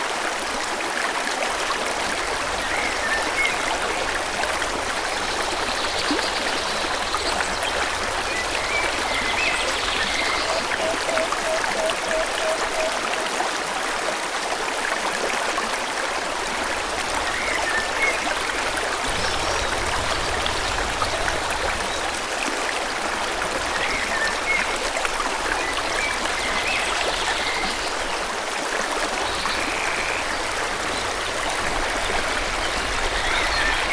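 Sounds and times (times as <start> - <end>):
stream flowing: 0.0 - 33.9.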